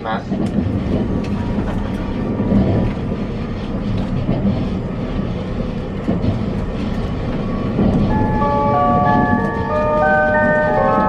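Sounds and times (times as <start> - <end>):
train running rumble: 0.0 - 11.0
announcement chime melody: 8.1 - 11.0.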